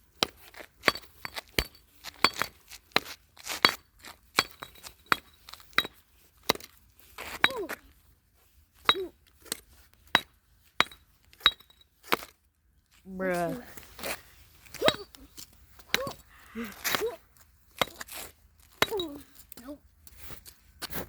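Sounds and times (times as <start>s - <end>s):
axe striking brick: 0.2s - 6.8s, 7.4s - 7.8s, 8.9s - 12.3s, 14.8s - 15.1s, 15.9s - 16.2s, 17.8s - 18.2s, 18.8s - 19.2s.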